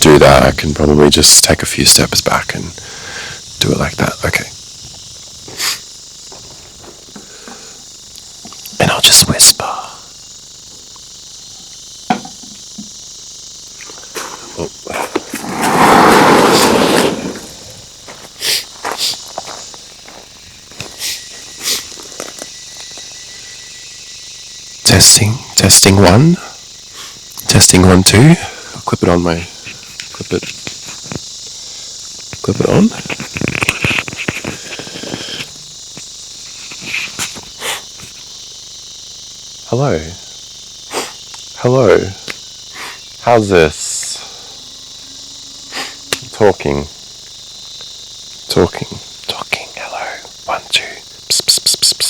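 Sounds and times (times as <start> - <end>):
crickets chirping: 0.0 - 52.0
microphone scrapes: 15.0 - 17.9, 32.9 - 35.6
microphone handling rustle: 32.3 - 38.3
microphone rubs and knocks: 32.3 - 38.3.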